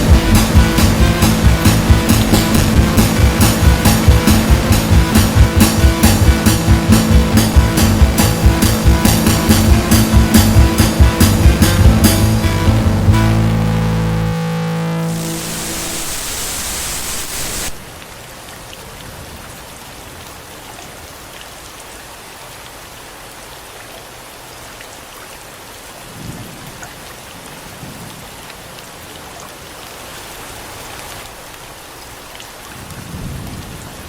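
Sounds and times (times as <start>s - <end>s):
steady rain falling: 0.0s - 14.2s, 15.0s - 34.0s
low rumbles: 0.0s - 16.3s.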